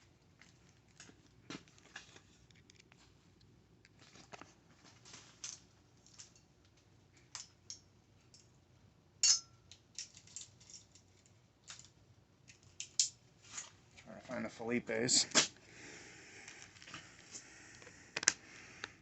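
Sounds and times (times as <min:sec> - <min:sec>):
sharp clack with ring: 0:09.2 - 0:09.6
small screws rattling: 0:09.2 - 0:13.2.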